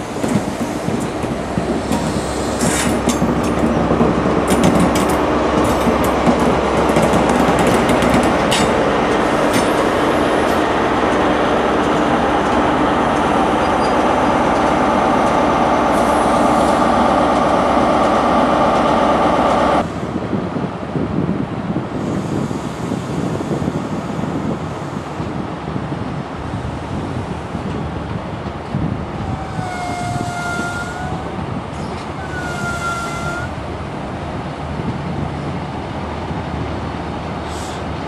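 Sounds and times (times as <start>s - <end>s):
train wheels clicking over rail joints: 0.0s - 19.9s
train coaches humming: 0.0s - 38.0s
wind noise: 0.0s - 38.0s.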